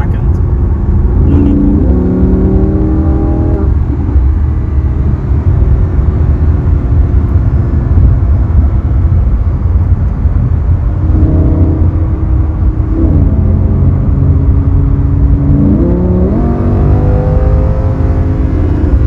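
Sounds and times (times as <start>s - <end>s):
sports car engine rumbling: 0.0s - 19.0s.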